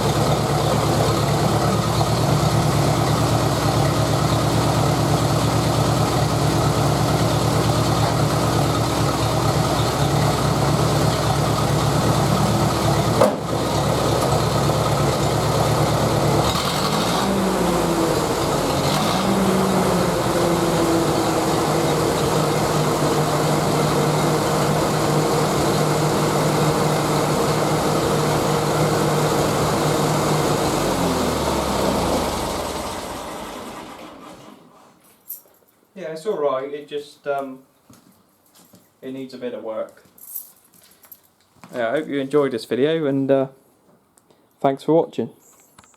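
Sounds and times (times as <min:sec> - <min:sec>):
tractor engine ticking over: 0:00.0 - 0:32.1
man talking: 0:36.0 - 0:37.6, 0:39.0 - 0:40.1, 0:41.7 - 0:43.6, 0:44.6 - 0:45.4.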